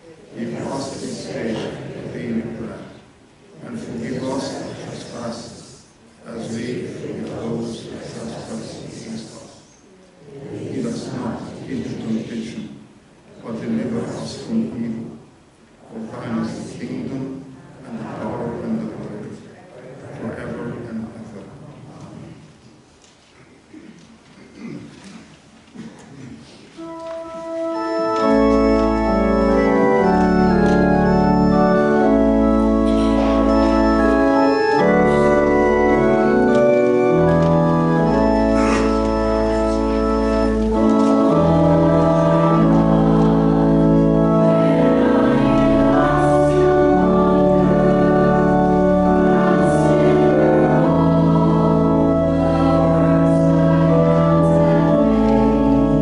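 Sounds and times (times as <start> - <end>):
organ playing a hymn: 26.8 - 56.0.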